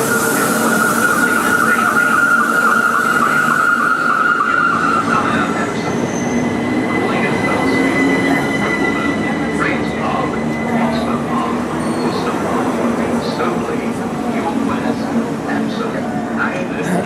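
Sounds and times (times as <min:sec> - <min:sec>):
wavering high squeal: 0:00.0 - 0:12.6
train rumble: 0:00.0 - 0:17.0.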